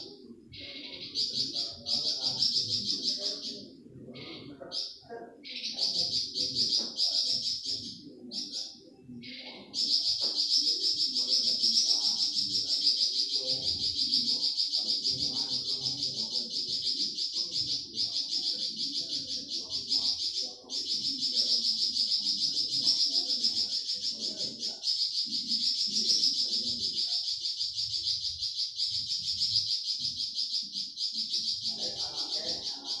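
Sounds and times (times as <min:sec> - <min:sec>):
bird singing fast chattering notes: 0:00.0 - 0:33.0.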